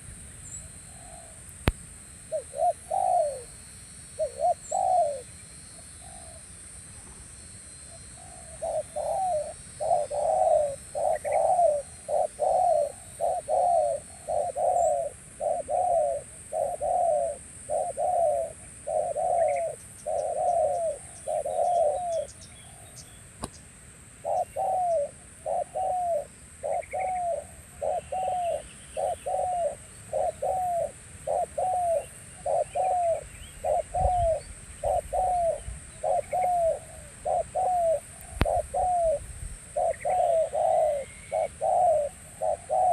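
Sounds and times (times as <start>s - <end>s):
faint high hiss: 0.0s - 42.9s
dove cooing: 2.3s - 3.5s, 4.2s - 5.3s, 8.2s - 23.0s, 24.2s - 42.9s
small birds chirping: 4.1s - 39.2s, 39.8s - 42.9s.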